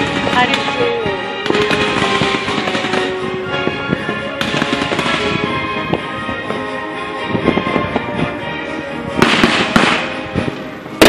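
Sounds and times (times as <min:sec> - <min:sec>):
fireworks bursting and crackling: 0:00.0 - 0:06.7, 0:09.1 - 0:11.0
music with held notes: 0:00.0 - 0:11.0.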